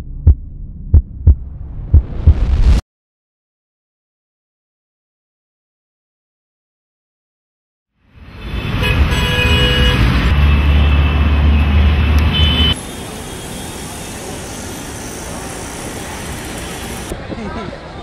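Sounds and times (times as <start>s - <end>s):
motor vehicle low hum: 0.0s - 2.8s
rushing traffic noise: 8.0s - 18.0s.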